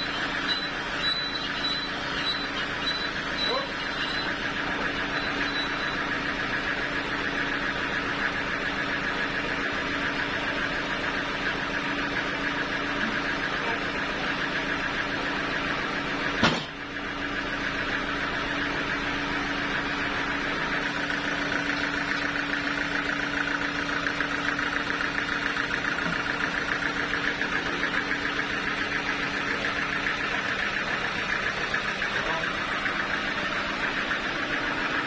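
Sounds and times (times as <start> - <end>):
engine running steadily: 0.0 - 35.0
sharp knock: 16.4 - 16.8.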